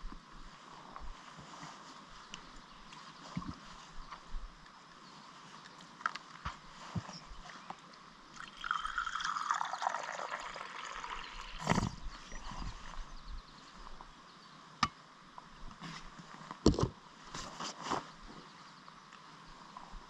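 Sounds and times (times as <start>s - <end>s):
liquid pouring: 8.3s - 11.9s.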